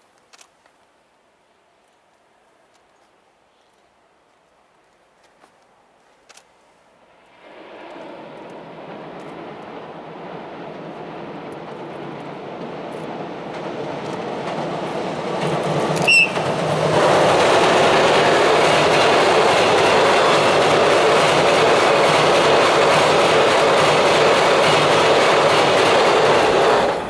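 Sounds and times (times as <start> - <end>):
train rumbling over steel bridge: 6.9 - 27.0
train wheel noise: 7.2 - 27.0
short high train whistle: 16.0 - 16.5.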